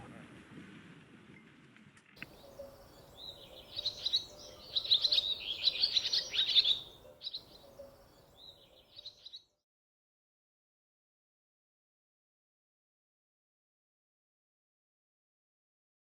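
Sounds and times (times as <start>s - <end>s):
songbirds chirping and twittering: 2.2s - 9.6s.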